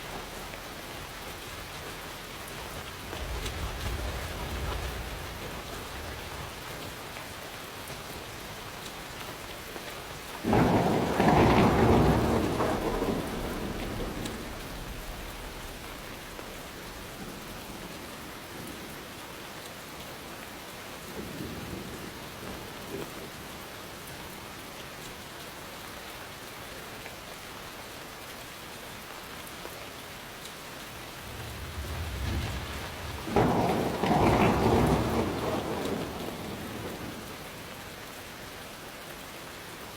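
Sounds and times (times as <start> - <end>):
thunder rumbling: 0.0 - 19.1, 30.8 - 38.4
steady rain: 0.0 - 39.9.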